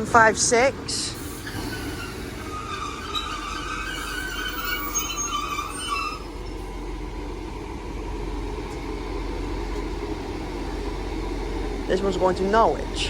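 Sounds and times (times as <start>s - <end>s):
low rumble of train: 0.0s - 13.0s
high metallic wheel squeal: 1.3s - 6.7s.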